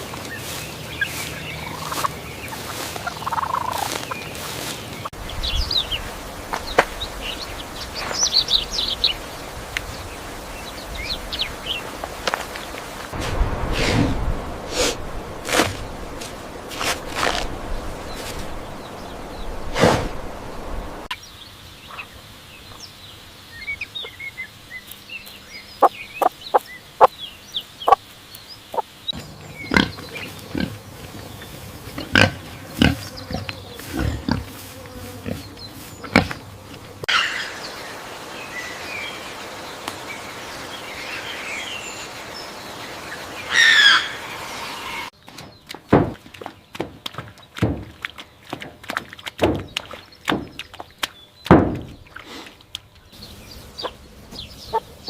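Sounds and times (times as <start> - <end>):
farm animals calling: 0.0 - 5.2, 28.7 - 37.8, 43.4 - 45.1, 53.2 - 55.0
bird chirps: 21.1 - 30.5.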